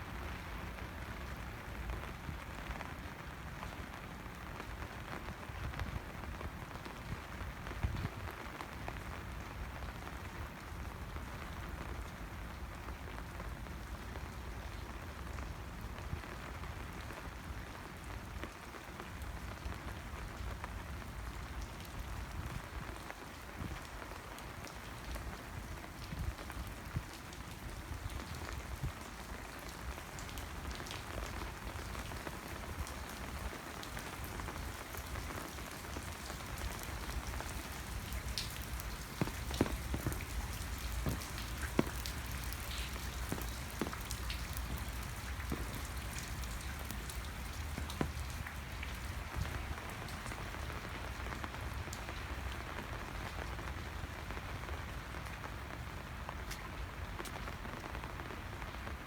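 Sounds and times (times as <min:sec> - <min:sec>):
steady rainfall: 0:00.0 - 0:59.0
raindrops ticking: 0:23.8 - 0:53.8.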